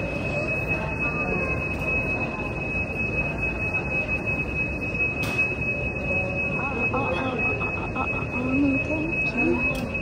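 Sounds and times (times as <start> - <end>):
concourse hubbub: 0.0 - 10.0
steady high-pitched tone: 0.0 - 10.0.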